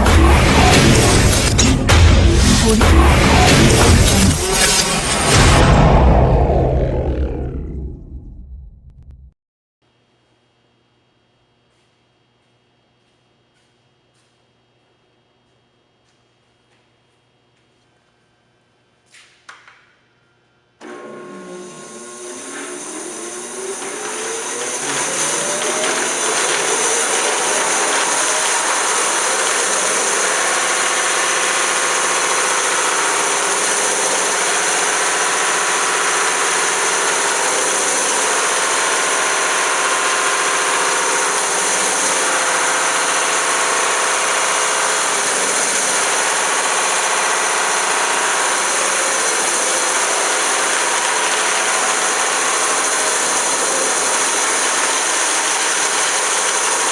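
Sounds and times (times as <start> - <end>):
band saw running: 0.0 - 7.9, 20.8 - 56.9.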